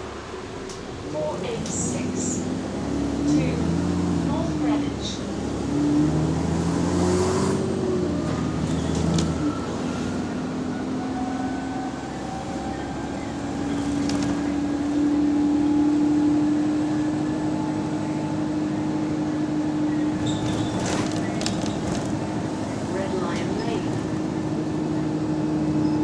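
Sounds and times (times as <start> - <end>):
bus engine drone with whine: 0.0 - 26.0.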